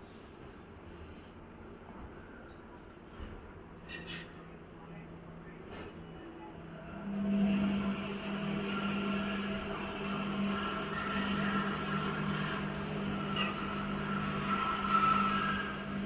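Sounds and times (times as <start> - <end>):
washing machine running: 6.6 - 16.0.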